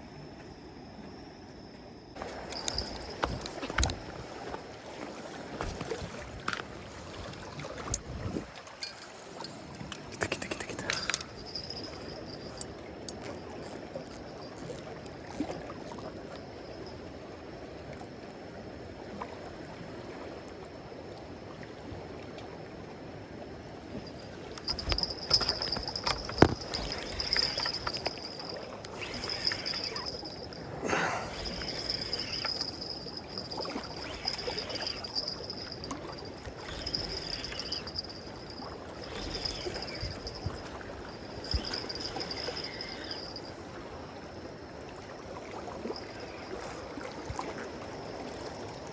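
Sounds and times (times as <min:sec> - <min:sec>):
fishing reel whirring: 0:02.2 - 0:04.1, 0:10.2 - 0:13.3, 0:24.0 - 0:43.6.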